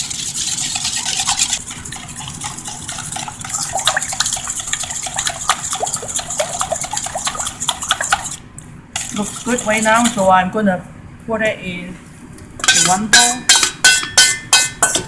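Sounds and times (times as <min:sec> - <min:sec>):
liquid egg sloshing: 0:00.0 - 0:08.4.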